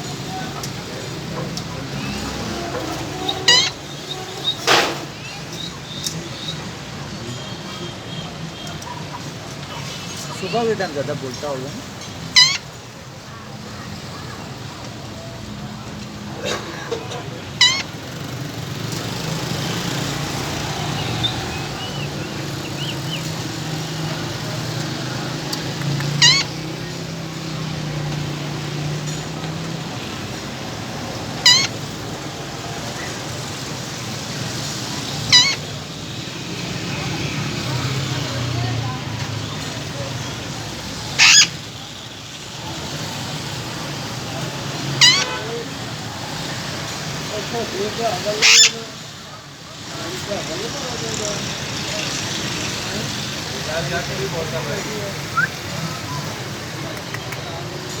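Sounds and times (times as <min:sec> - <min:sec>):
parakeet shrill calls: 0:02.0 - 0:04.6, 0:12.3 - 0:12.7, 0:17.6 - 0:18.0, 0:26.1 - 0:26.6, 0:31.4 - 0:31.9, 0:35.2 - 0:35.7, 0:41.1 - 0:41.6, 0:45.0 - 0:45.4, 0:48.3 - 0:48.8
parrot squawk: 0:02.0 - 0:04.6, 0:12.3 - 0:12.7, 0:17.6 - 0:18.0, 0:25.9 - 0:26.6, 0:31.3 - 0:31.9, 0:35.2 - 0:35.7, 0:41.0 - 0:41.6, 0:44.9 - 0:45.5, 0:48.2 - 0:49.0, 0:55.3 - 0:56.3.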